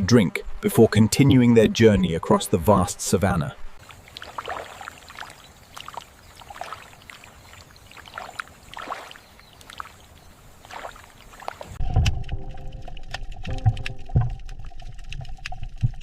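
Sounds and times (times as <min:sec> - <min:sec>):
water splashing and lapping: 0:03.6 - 0:16.0
low rumble: 0:11.8 - 0:16.0.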